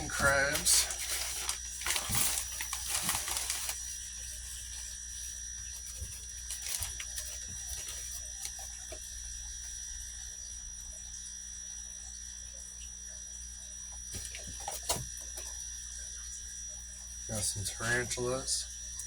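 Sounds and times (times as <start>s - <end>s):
thin high whine: 0.0s - 12.0s, 15.4s - 19.0s
steady background hum: 0.0s - 19.0s
faint clicks and rustles: 0.2s - 9.1s.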